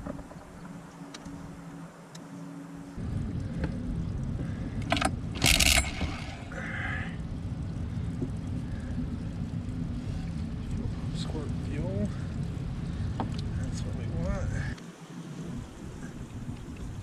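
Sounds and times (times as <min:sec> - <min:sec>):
outboard motor running: 0:04.4 - 0:14.6.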